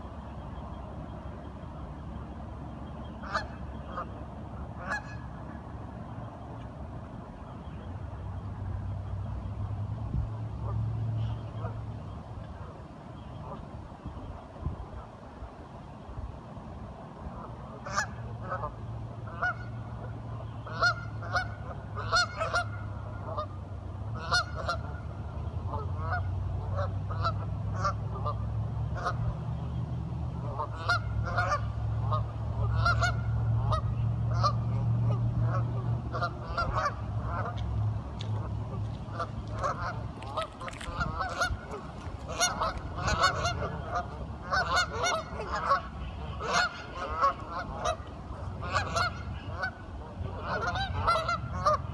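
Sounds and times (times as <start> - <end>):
ducks calling: 17.8 - 23.5, 35.4 - 51.9.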